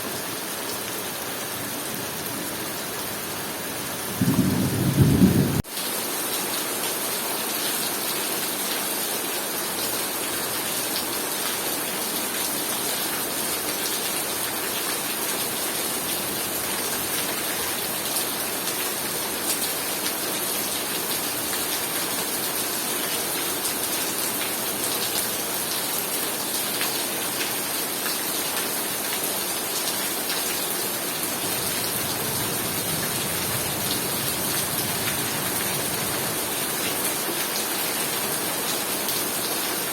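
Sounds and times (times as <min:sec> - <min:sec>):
heavy rain pouring: 0:00.0 - 0:39.9
thunderclap: 0:04.1 - 0:05.6.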